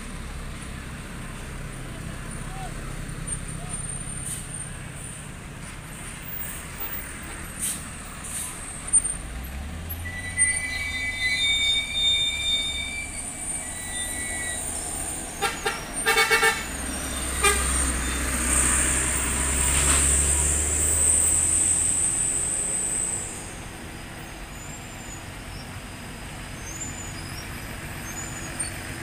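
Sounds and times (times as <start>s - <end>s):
truck diesel engines labouring: 0.0s - 29.0s
vehicle horn: 15.4s - 18.1s.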